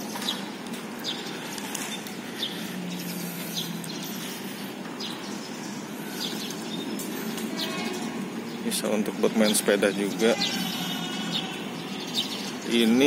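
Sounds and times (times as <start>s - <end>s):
small bird chirping: 0.0s - 8.6s
outdoor background hum: 0.0s - 13.0s.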